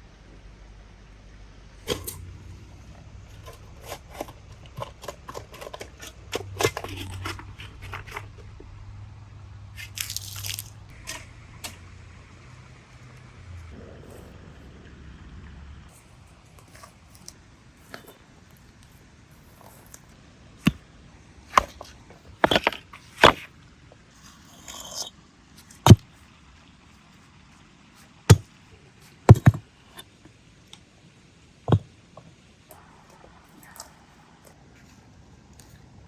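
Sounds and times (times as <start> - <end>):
hard objects knocking and clattering: 1.9 - 8.6, 21.5 - 23.5, 25.8 - 26.0, 29.3 - 29.6, 31.7 - 31.9.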